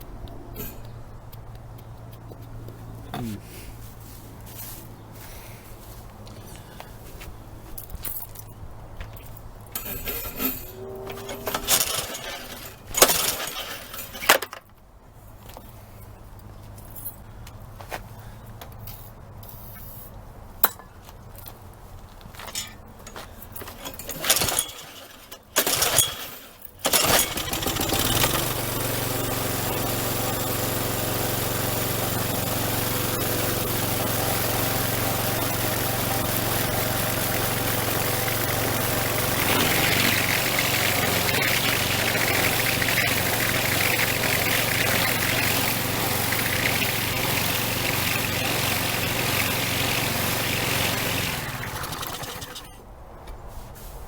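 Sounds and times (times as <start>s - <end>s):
starter cord pulls: 9.7s - 14.7s, 22.4s - 52.8s
small gas engine running: 9.8s - 14.6s, 23.6s - 52.8s.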